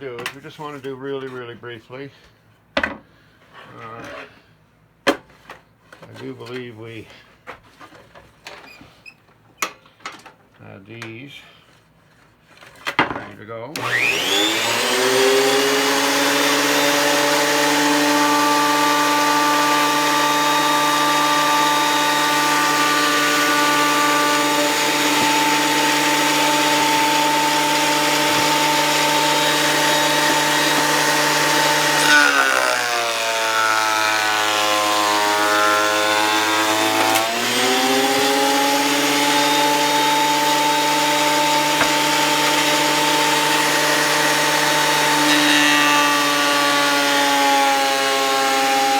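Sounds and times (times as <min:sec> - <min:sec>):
thickness planer whining: 0:13.7 - 0:48.9.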